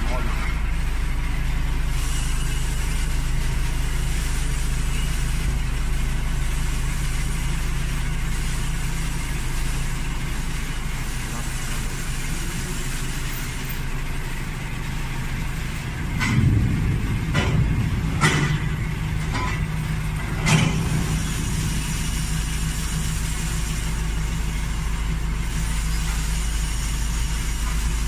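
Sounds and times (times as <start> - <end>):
vehicle engine idling: 0.0 - 28.0
sharp knock: 16.1 - 22.0.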